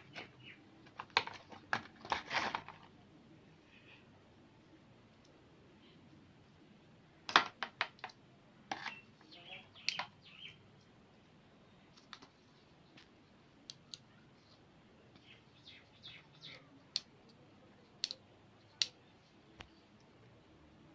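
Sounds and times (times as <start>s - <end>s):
sharp clicks and taps: 18.0s - 18.2s.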